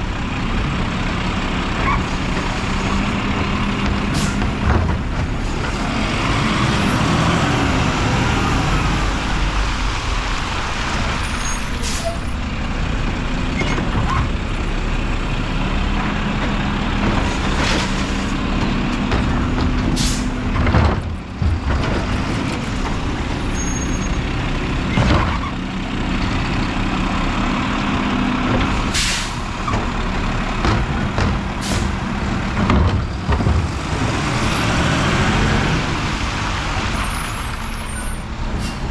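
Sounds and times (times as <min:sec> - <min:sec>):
garbage truck diesel engine running: 0:00.0 - 0:38.9
air brake hisses: 0:20.0 - 0:20.3, 0:28.9 - 0:29.4.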